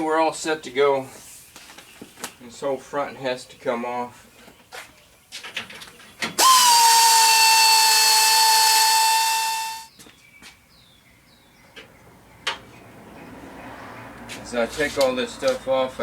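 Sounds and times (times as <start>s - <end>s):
power tool whining: 6.4s - 9.9s.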